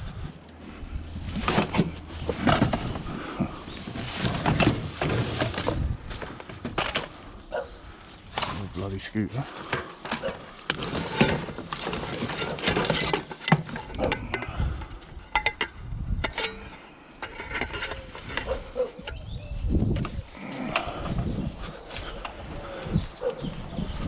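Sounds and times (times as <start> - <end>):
scrap items rummaged through: 1.0 - 7.3, 8.0 - 19.2.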